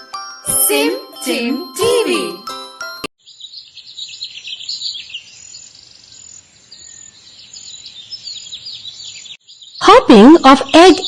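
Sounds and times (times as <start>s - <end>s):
songbirds chirping: 3.2s - 11.0s.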